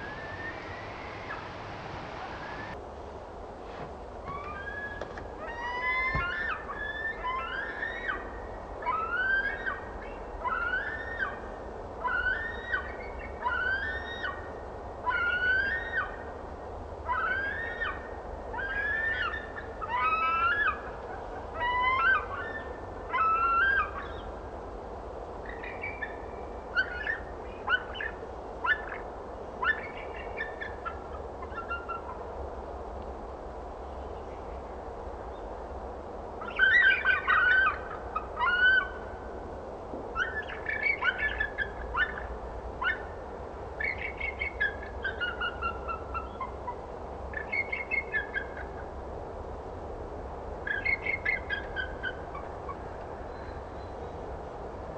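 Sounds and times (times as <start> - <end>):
bird calling: 0.0 - 2.8, 4.2 - 16.2, 17.1 - 24.4, 25.4 - 32.2, 36.4 - 39.2, 40.2 - 43.2, 43.8 - 48.9, 50.7 - 54.1.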